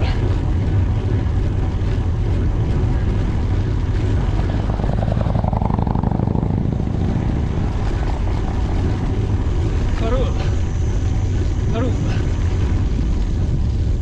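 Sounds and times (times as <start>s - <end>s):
road noise: 0.0s - 14.0s
wind buffeting microphone: 0.0s - 14.0s
vehicle rushing past: 4.0s - 9.7s.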